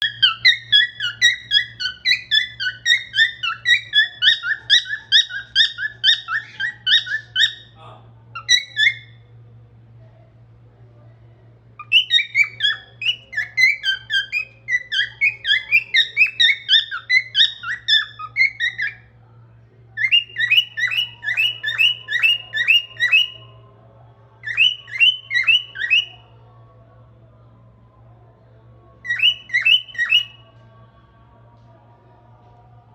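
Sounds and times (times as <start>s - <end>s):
cockatiel whistling: 0.0s - 7.8s, 8.4s - 9.1s, 11.8s - 19.1s, 20.0s - 23.4s, 24.4s - 26.2s, 29.1s - 30.4s.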